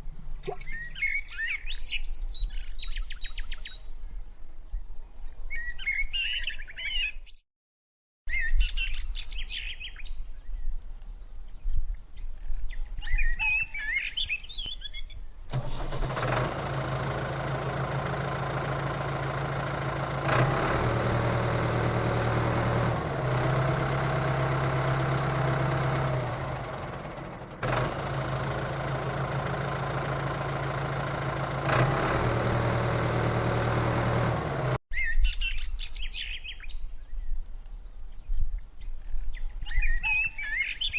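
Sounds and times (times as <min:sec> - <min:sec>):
small motor humming: 0:15.5 - 0:34.8.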